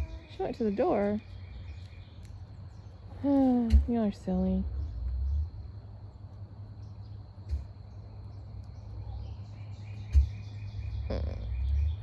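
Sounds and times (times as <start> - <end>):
low rumble: 3.9 - 7.2
bird chirps: 7.9 - 12.0.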